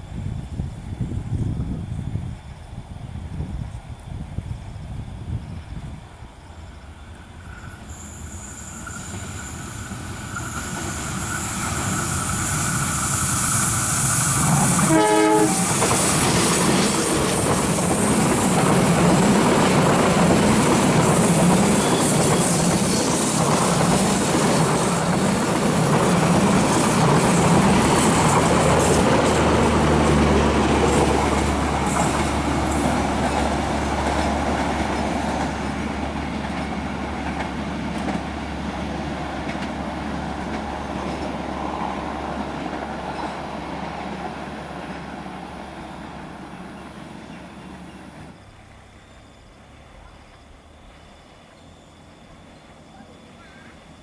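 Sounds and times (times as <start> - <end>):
train wheels clattering: 8.8 - 38.5.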